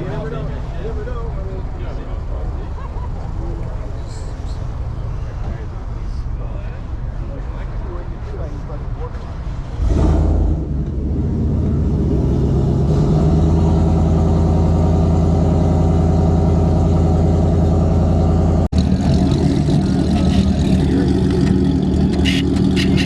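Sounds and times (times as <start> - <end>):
car engine running: 13.5 - 23.0.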